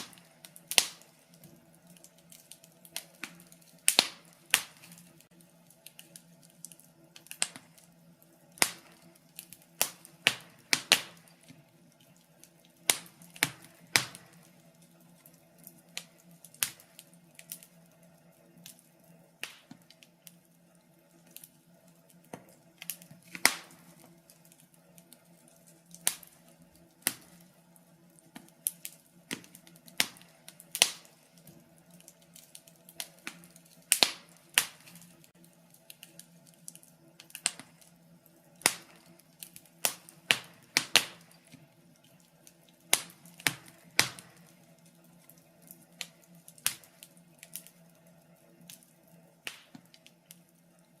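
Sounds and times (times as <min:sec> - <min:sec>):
wood fire crackling and popping: 0:00.0 - 0:51.0.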